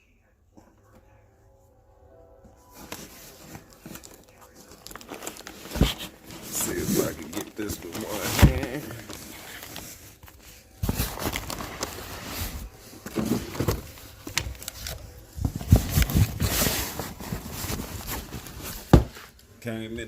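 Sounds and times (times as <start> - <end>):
cardboard boxes knocking and scraping: 5.5 - 9.7, 10.8 - 14.0, 15.4 - 19.3.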